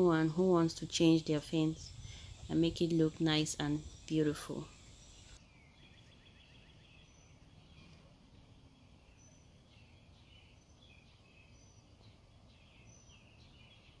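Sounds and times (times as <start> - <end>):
low outdoor rumble: 0.0 - 5.4
bird chirps: 3.3 - 8.0, 8.8 - 14.0.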